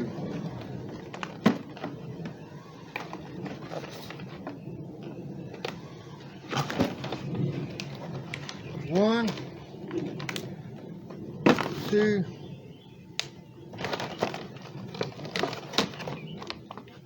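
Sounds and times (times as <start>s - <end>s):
cardboard rustling: 0.0s - 9.5s, 11.4s - 12.1s, 13.7s - 17.0s.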